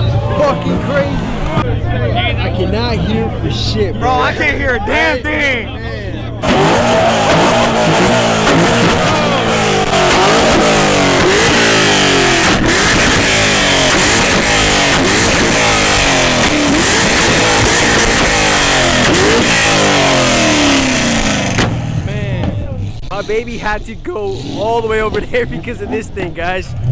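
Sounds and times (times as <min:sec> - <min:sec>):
car engine revving: 0:00.0 - 0:26.9.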